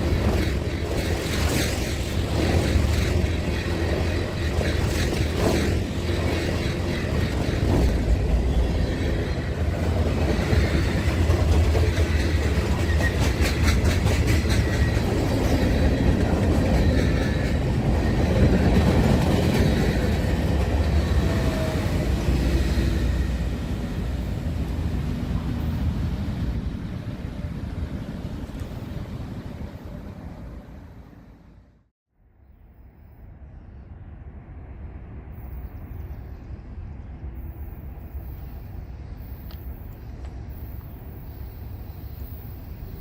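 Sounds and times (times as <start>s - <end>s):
train rolling past: 0.0s - 31.8s, 32.4s - 43.0s
train wheel clicks: 10.2s - 17.8s.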